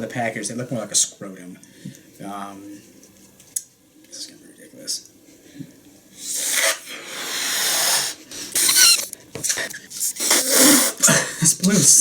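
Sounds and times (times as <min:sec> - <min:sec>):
air rushing into balloon: 0:06.2 - 0:09.1, 0:10.1 - 0:11.1
balloon rubber squeaking: 0:06.2 - 0:09.1, 0:10.0 - 0:11.0.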